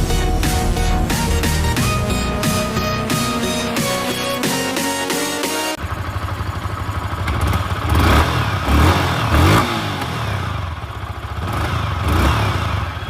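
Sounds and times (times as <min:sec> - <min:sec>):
motorcycle engine idling: 0:05.8 - 0:08.8, 0:10.2 - 0:13.0.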